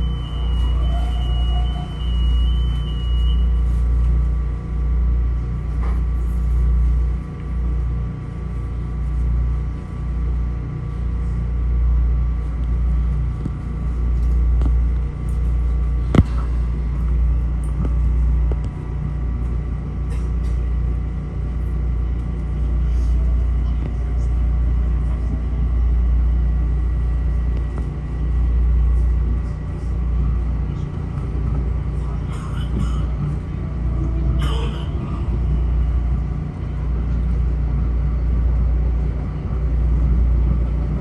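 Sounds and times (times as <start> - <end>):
faint whining tones: 0.0 - 4.4
train low rumble: 0.0 - 41.0.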